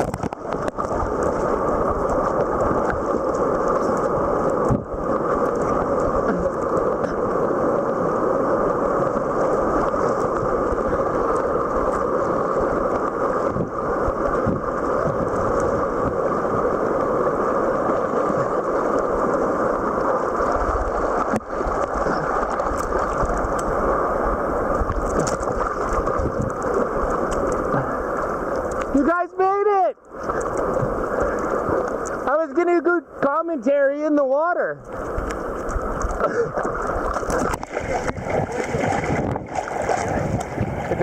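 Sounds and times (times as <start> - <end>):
river rapids rushing: 35.0 - 41.0.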